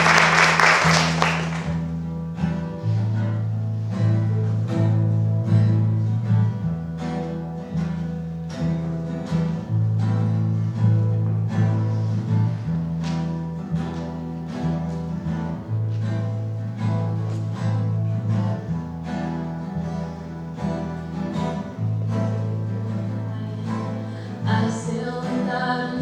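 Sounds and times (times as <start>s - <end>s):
applause: 0.0s - 1.9s
plucked guitar notes: 0.0s - 26.0s
low sustained bass notes: 0.9s - 26.0s.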